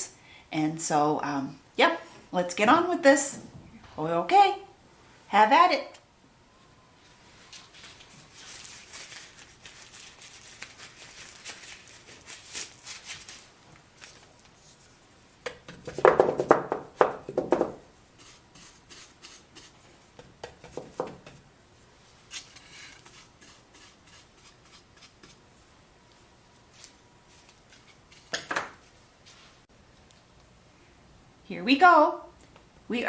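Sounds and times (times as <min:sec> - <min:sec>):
paintbrush scraping over wood: 0:18.1 - 0:20.0, 0:22.2 - 0:25.7.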